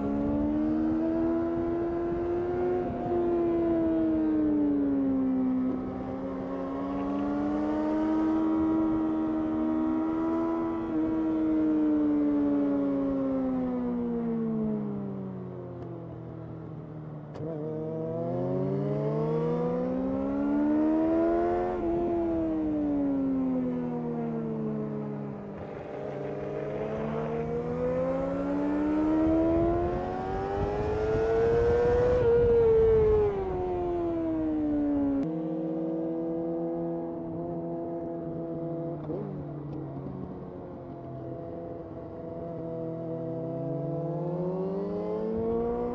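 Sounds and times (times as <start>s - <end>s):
motorcycle engine revving: 24.2s - 33.6s.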